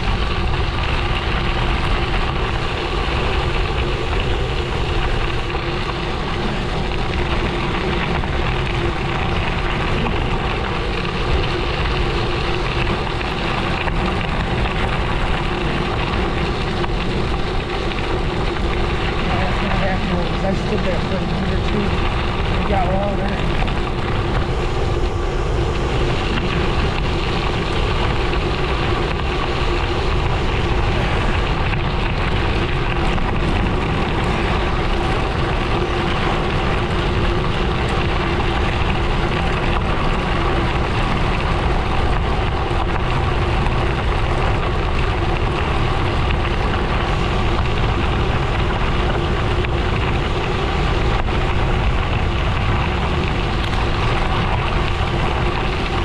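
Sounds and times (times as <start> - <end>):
bike tyre noise: 0.0 - 56.0
wind rushing over microphone: 0.0 - 56.0.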